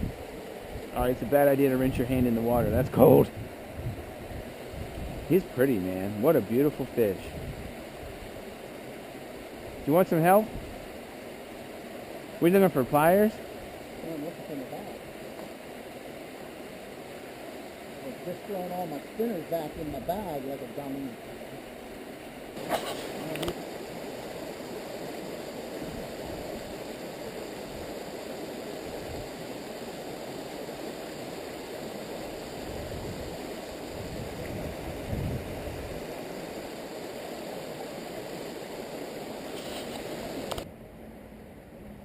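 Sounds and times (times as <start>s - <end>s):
stream running over rocks: 0.0s - 40.7s.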